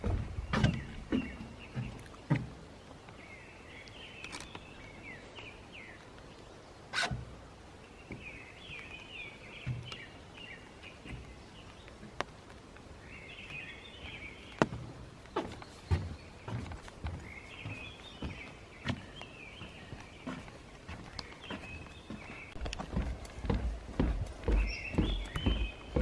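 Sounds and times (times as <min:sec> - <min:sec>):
footstep-like knocks: 0:00.0 - 0:02.7, 0:09.5 - 0:10.1, 0:11.0 - 0:12.6, 0:14.0 - 0:26.0.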